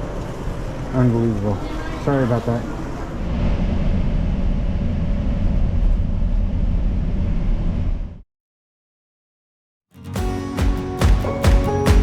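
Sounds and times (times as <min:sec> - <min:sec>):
low rumbling noise: 0:00.0 - 0:08.2.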